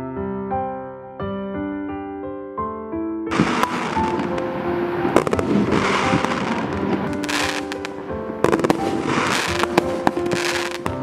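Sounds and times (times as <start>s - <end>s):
background music: 0.0s - 11.0s
fireworks bangs and crackle: 3.3s - 11.0s.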